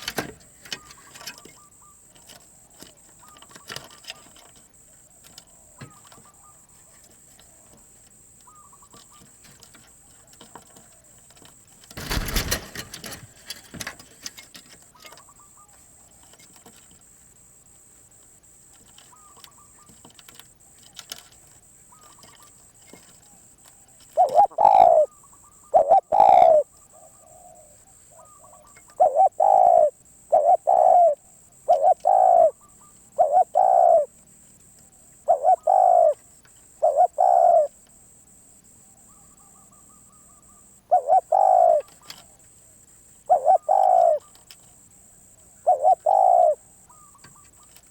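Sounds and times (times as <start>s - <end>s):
dove cooing: 12.0s - 14.0s, 21.9s - 34.2s, 35.2s - 37.8s, 39.0s - 42.4s, 43.2s - 44.6s, 45.4s - 47.9s.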